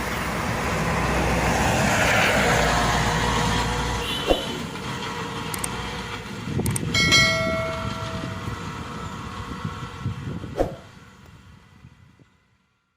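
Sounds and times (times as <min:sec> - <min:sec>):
combine harvester rumbling: 0:00.0 - 0:12.1
ringing metal clang: 0:07.0 - 0:08.5.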